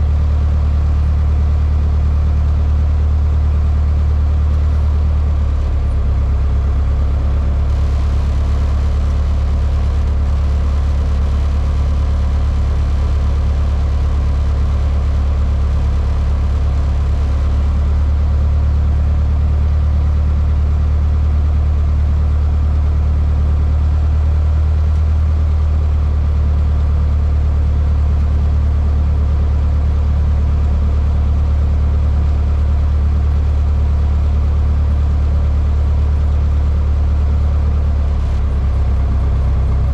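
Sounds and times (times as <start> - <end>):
propeller aircraft engine droning: 4.5 - 18.0.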